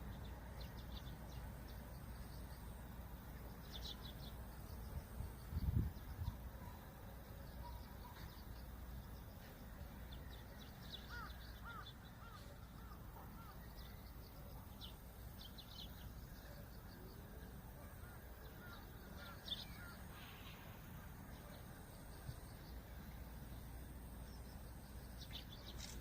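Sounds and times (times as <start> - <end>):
low rumble of wind: 0.0 - 26.0
birds calling arching notes: 10.2 - 23.7.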